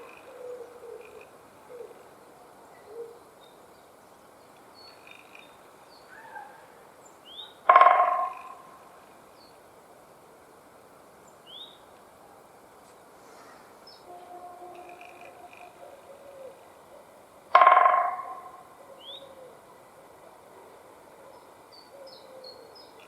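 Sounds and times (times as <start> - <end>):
woodpecker drumming on tree: 7.7 - 8.7, 14.6 - 15.8, 17.5 - 18.7
faint bird chirps: 13.9 - 16.6.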